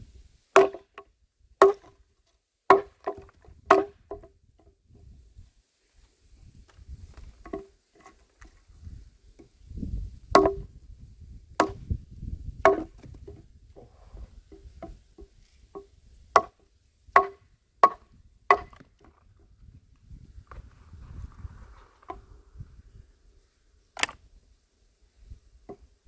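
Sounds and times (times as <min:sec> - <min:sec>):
axe chopping wood: 0:00.6 - 0:01.0, 0:01.6 - 0:02.0, 0:02.7 - 0:04.3, 0:10.3 - 0:10.7, 0:11.6 - 0:12.0, 0:12.6 - 0:13.4, 0:14.5 - 0:19.0, 0:24.0 - 0:24.2.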